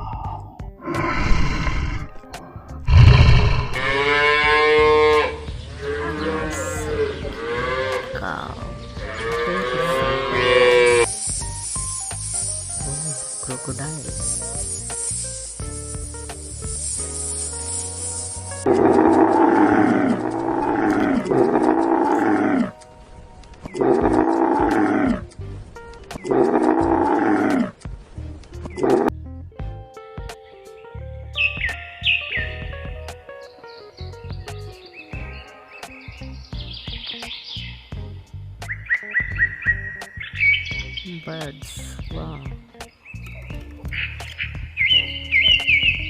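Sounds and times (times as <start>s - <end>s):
large animal roaring: 0.2s - 8.1s, 9.1s - 11.1s, 18.7s - 22.8s, 23.8s - 25.4s, 26.2s - 27.8s
loud low burst: 2.1s - 4.0s
cattle mooing: 2.9s - 8.4s, 9.0s - 11.1s, 18.7s - 22.8s, 23.8s - 25.2s, 26.3s - 27.8s.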